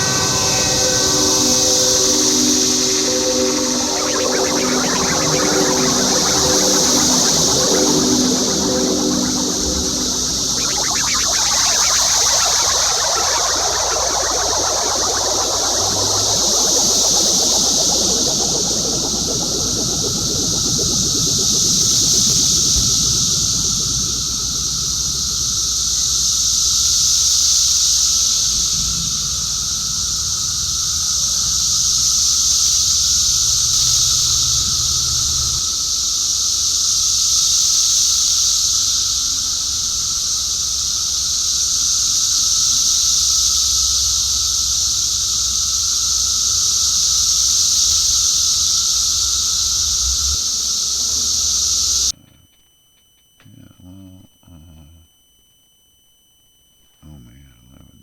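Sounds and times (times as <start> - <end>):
low synthesizer hum: 0.0 - 25.5
cicadas droning: 0.0 - 52.6, 53.4 - 55.1.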